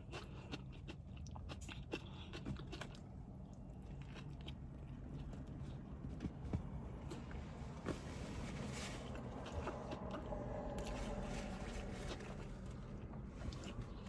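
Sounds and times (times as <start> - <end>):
person chewing food: 0.0 - 6.0, 9.0 - 14.0.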